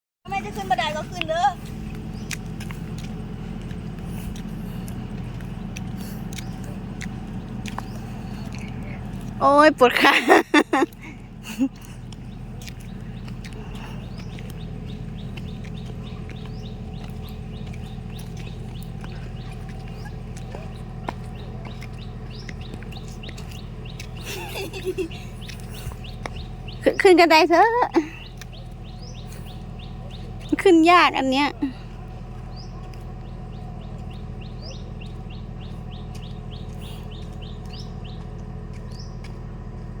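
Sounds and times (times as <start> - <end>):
low hum: 0.3 - 40.0
small birds chirping: 0.3 - 40.0
steady low rumble: 0.3 - 40.0.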